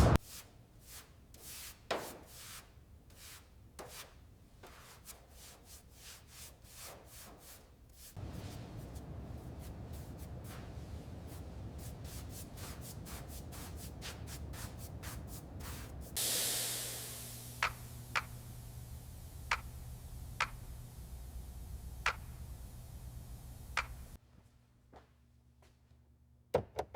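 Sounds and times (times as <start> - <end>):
light rubbing strokes: 0.0 - 24.2
spray hissing: 8.0 - 24.2
low hum: 8.2 - 24.2
sharp clicks: 22.0 - 22.4.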